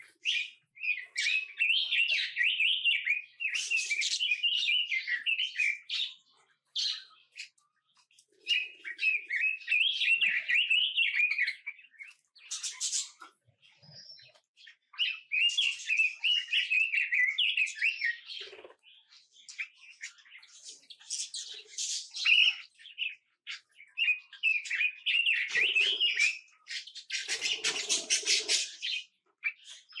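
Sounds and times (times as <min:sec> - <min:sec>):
songbirds twittering: 0:00.0 - 0:30.0.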